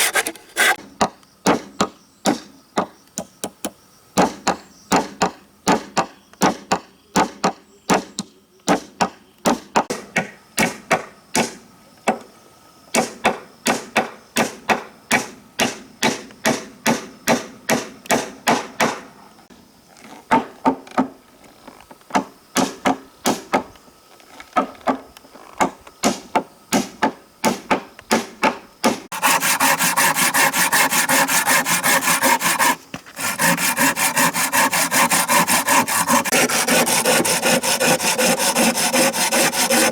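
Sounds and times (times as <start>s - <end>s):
wood being sawn: 0.0s - 0.8s, 29.1s - 39.9s
wood being struck: 29.1s - 39.9s.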